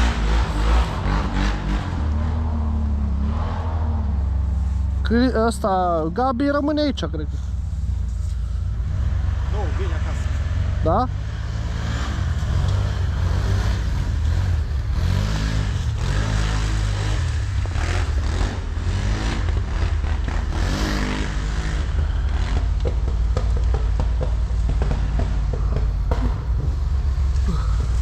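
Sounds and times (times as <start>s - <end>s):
off-road vehicle engine running: 0.0s - 28.0s
small knocks and clatter: 22.8s - 26.8s.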